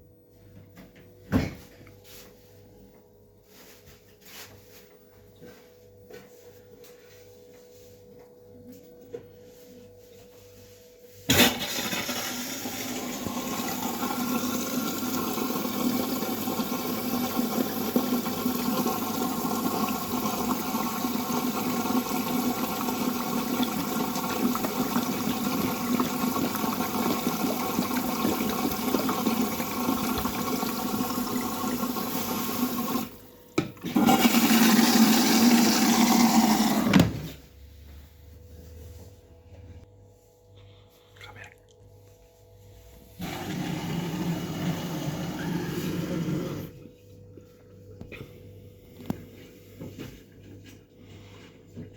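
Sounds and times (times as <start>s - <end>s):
water rushing into washing machine: 11.3s - 37.4s, 43.2s - 46.8s.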